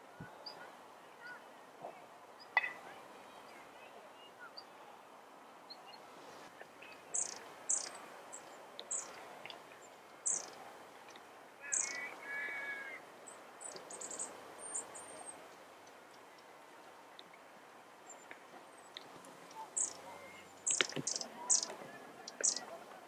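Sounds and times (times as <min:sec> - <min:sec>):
high-pitched bird calls: 0:06.8 - 0:09.2, 0:10.2 - 0:10.6, 0:11.6 - 0:13.0, 0:13.6 - 0:15.4, 0:18.9 - 0:22.8.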